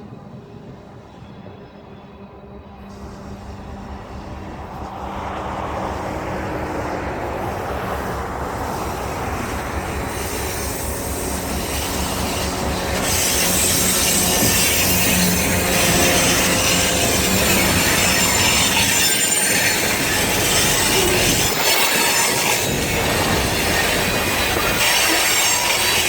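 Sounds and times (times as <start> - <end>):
model locomotive engine: 0.0 - 26.0
wheel and track rumble: 0.0 - 26.0.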